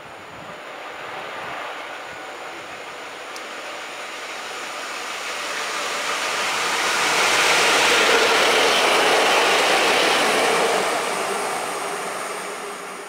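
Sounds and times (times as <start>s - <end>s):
locomotives passing on rails: 0.0s - 13.0s.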